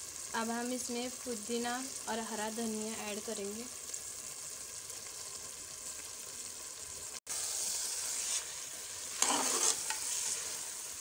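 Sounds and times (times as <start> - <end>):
food sizzling in a pot: 0.0 - 11.0
utensil scraping and stirring: 7.4 - 10.8.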